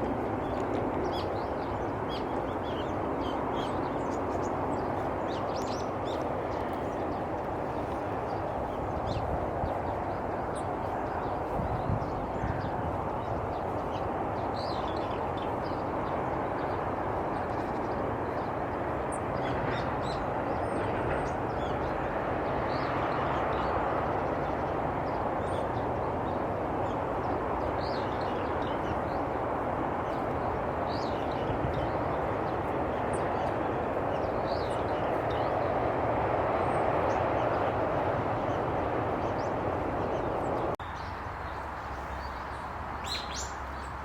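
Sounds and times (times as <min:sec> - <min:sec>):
distant traffic rumble: 0:00.0 - 0:44.0
bird chirps: 0:42.0 - 0:44.0.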